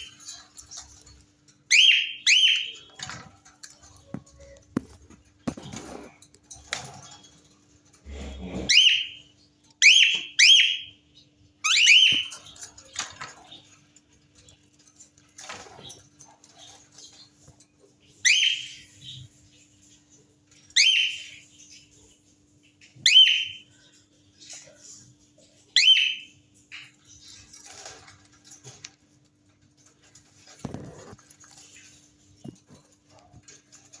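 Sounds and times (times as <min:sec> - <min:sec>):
soft scratchy sounds: 0:03.0 - 0:08.9, 0:27.0 - 0:34.0
cockatiel chirp: 0:11.6 - 0:12.3, 0:25.8 - 0:26.3.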